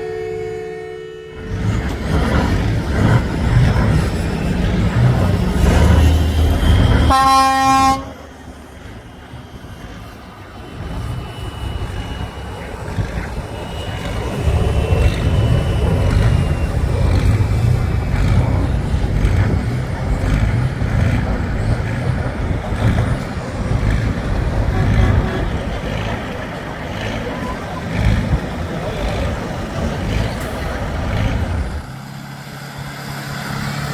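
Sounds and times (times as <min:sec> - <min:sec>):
horn honking: 0:00.0 - 0:08.4, 0:13.9 - 0:31.7
heavy truck engine rumbling: 0:00.0 - 0:33.9.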